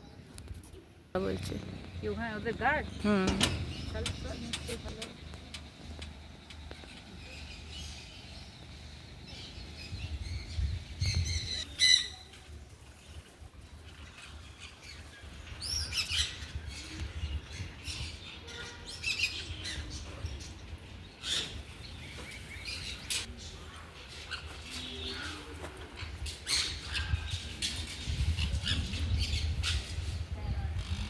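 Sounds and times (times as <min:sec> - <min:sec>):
birds chirping: 0:00.0 - 0:31.0
birds squawking: 0:01.8 - 0:12.3.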